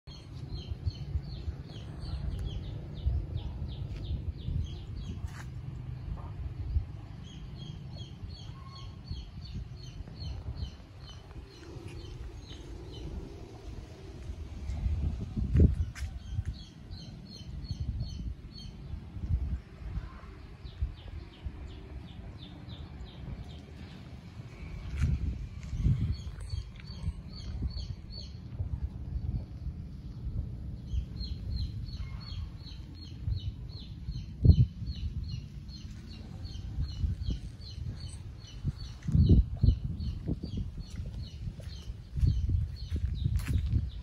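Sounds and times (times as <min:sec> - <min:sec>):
uneven low rumble: 0:00.1 - 0:44.0.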